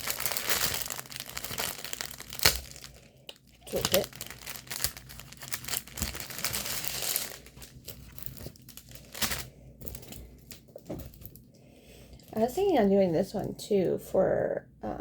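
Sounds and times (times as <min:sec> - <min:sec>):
packaging crinkling and rustling: 0:00.0 - 0:11.5.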